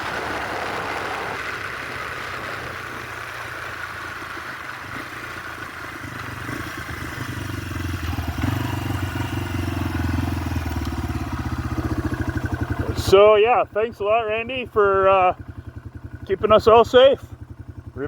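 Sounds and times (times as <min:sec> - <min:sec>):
wind noise: 0:00.0 - 0:04.4
motorcycle engine running: 0:00.0 - 0:18.0.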